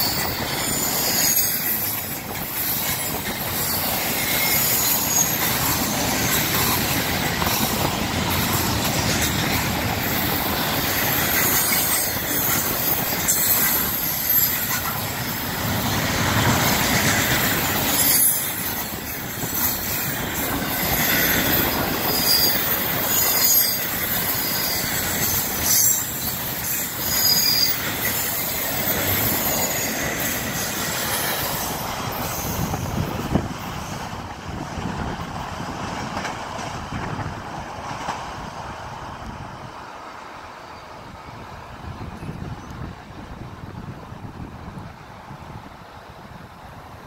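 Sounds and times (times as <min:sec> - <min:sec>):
wheel flanges squealing: 0:00.0 - 0:34.3
train cars rolling past: 0:00.0 - 0:47.0.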